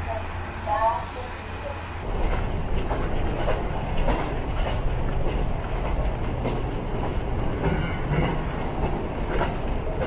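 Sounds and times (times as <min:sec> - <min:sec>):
train engine rumble: 0:00.0 - 0:10.0
wheels clicking over rail joints: 0:02.1 - 0:10.0.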